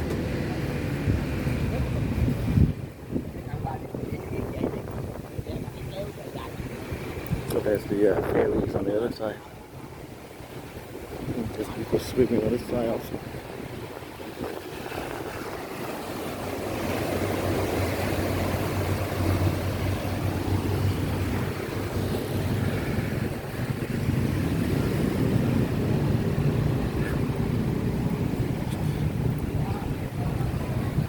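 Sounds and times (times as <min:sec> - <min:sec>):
engine humming: 0:13.4 - 0:31.0.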